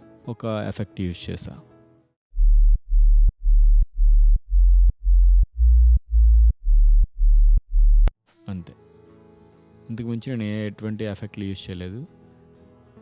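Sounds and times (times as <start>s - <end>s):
pumping synth sub-bass: 2.4s - 8.1s.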